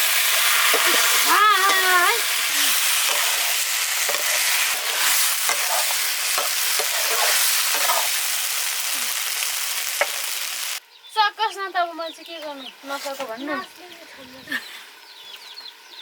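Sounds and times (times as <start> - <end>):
food sizzling in oil: 0.0 - 10.8
utensil scraping a pan: 2.5 - 8.2.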